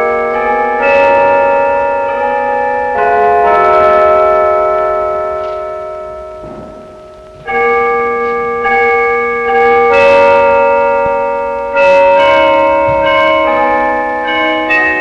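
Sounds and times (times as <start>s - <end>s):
bells playing slow tune: 0.0s - 15.0s.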